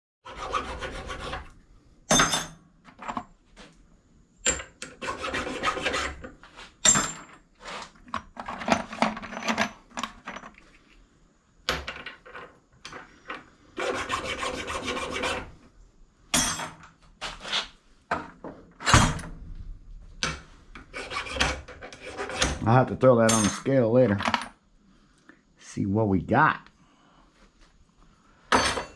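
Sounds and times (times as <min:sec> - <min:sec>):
scrap metal scraping: 0:04.9 - 0:09.6, 0:20.6 - 0:22.8.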